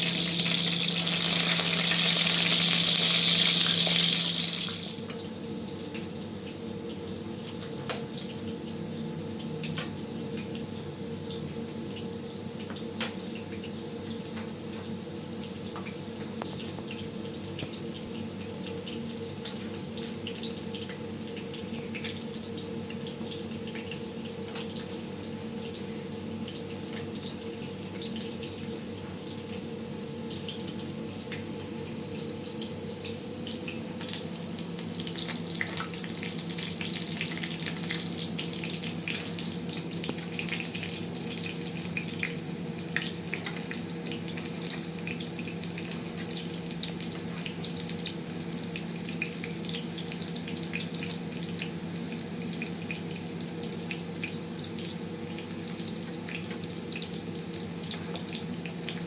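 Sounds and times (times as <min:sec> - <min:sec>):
running water: 0:00.0 - 0:05.0
high insect trill: 0:00.0 - 0:05.2, 0:31.8 - 0:58.6.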